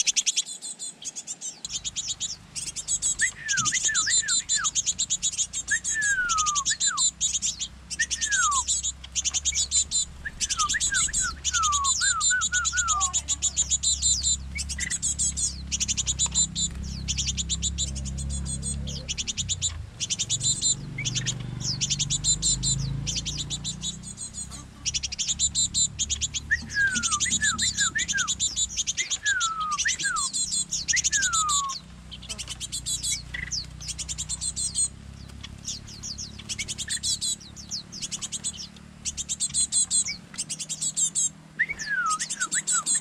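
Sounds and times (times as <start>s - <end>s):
fledglings chattering calls: 0.0s - 43.0s
falling whistles: 3.2s - 4.8s, 5.7s - 7.1s, 7.9s - 8.8s, 10.1s - 13.2s, 26.5s - 31.8s, 41.6s - 43.0s.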